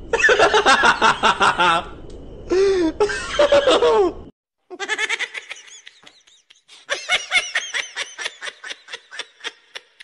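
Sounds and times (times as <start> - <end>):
high-pitched laughter: 3.1 - 10.0.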